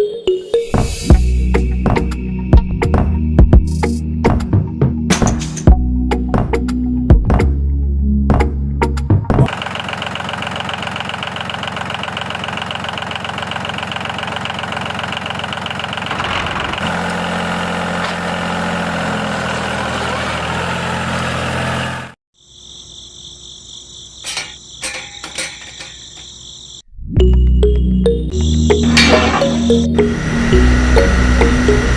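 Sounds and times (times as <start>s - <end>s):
small engine running: 9.5s - 22.2s, 28.8s - 31.9s.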